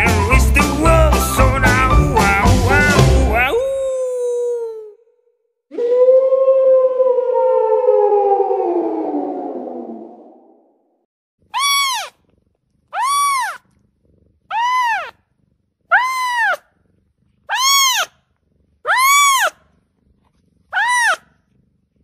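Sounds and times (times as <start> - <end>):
cat meowing: 2.8 - 4.5, 11.5 - 12.3, 12.9 - 13.8, 14.5 - 15.2, 15.9 - 16.6, 17.5 - 18.2, 18.8 - 19.6, 20.7 - 21.3.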